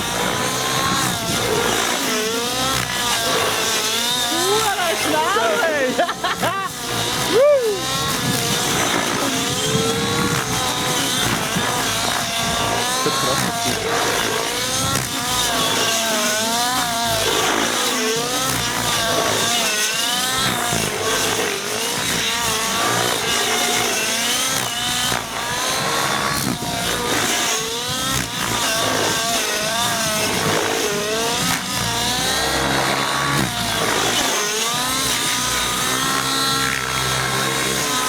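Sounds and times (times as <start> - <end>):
rc helicopter engine and rotor: 0.0 - 38.0.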